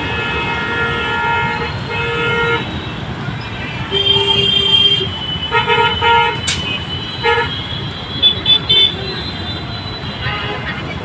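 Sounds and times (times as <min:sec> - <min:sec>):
street traffic rumble: 0:00.0 - 0:11.0
vehicle horns honking: 0:00.0 - 0:11.0
sharp click: 0:06.4 - 0:06.8.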